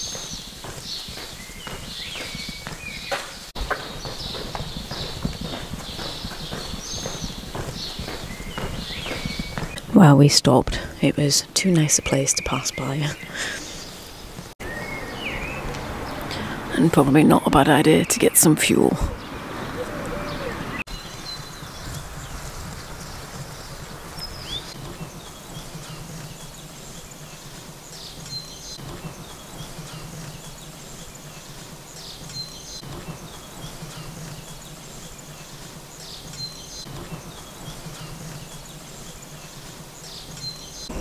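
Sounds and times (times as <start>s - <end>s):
outdoor background noise: 0.0s - 41.0s
bird singing short phrase: 19.2s - 21.6s.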